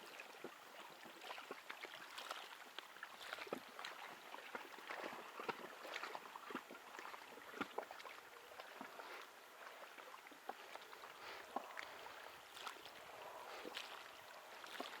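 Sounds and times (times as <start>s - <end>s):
small waves lapping: 0.0s - 15.0s.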